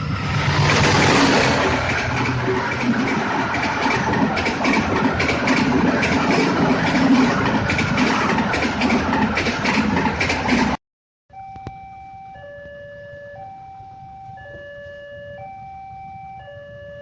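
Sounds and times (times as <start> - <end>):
passenger train rumbling past: 0.0 - 10.8
wheels clicking over rail joints: 0.6 - 10.8.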